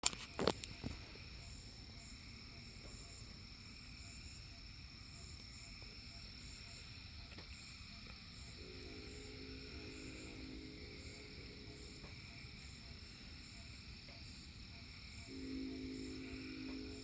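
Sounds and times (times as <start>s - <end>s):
crickets trilling: 0.0s - 17.0s
frogs calling: 0.0s - 17.0s
distant locomotive air horn: 8.5s - 13.3s, 15.2s - 17.0s.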